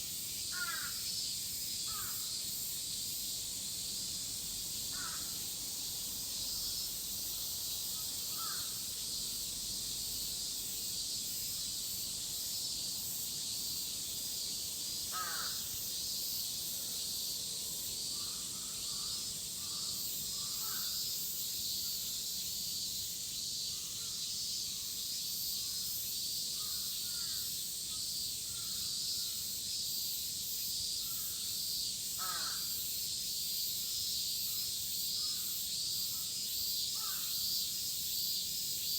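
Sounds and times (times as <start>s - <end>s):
cicadas shrilling: 0.0s - 38.9s
crows cawing: 0.5s - 1.0s, 1.9s - 2.2s, 4.9s - 5.3s, 8.3s - 8.8s, 15.1s - 15.6s, 18.2s - 21.0s, 32.2s - 32.7s, 37.0s - 37.3s.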